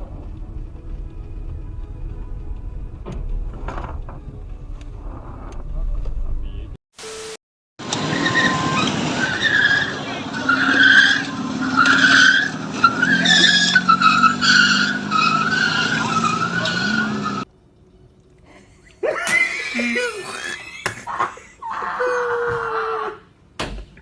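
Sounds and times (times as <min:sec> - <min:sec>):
car tyres squealing: 0:07.8 - 0:17.5.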